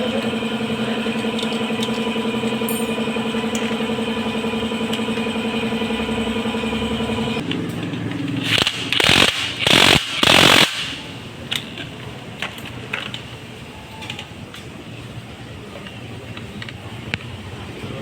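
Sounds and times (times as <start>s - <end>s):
loud hiss: 8.4s - 11.1s.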